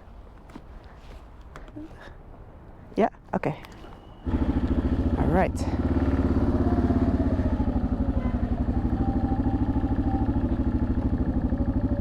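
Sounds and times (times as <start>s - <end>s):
motorcycle engine idling: 4.2s - 12.0s.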